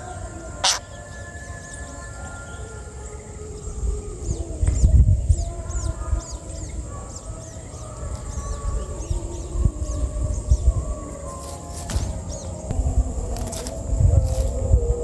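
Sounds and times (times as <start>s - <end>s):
nestlings chirping: 5.6s - 14.7s
low rumble: 7.6s - 15.0s.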